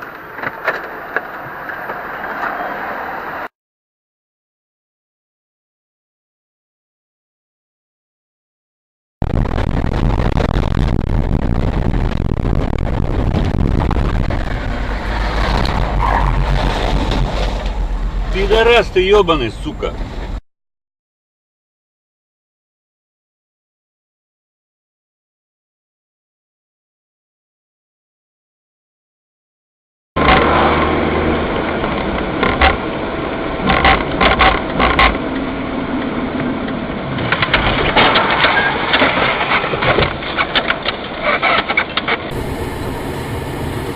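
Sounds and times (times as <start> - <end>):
vehicle engine and road rumble: 0.0 - 3.5, 9.2 - 20.4, 30.2 - 43.9.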